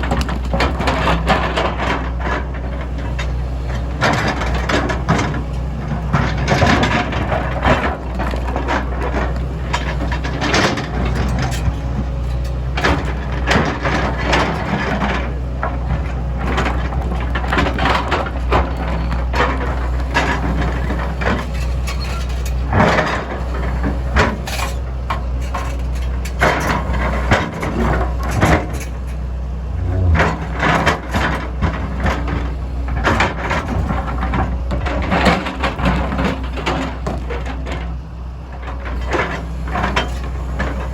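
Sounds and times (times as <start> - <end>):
excavator diesel engine running: 0.0 - 40.9
bucket scraping through rock: 29.6 - 30.8.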